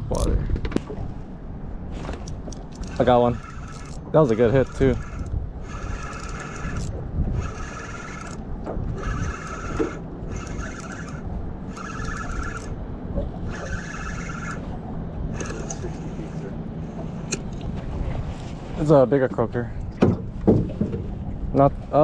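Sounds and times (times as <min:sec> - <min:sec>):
steady low rumble: 0:00.0 - 0:22.0
fishing reel gears whirring: 0:02.0 - 0:12.8, 0:13.4 - 0:17.5.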